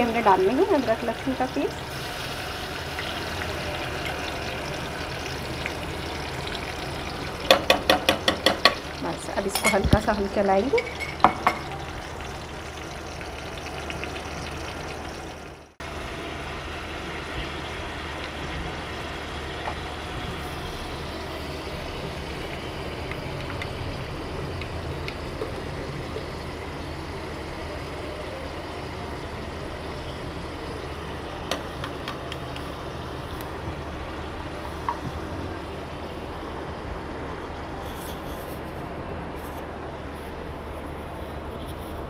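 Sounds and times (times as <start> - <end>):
food sizzling in oil: 0.0 - 31.8.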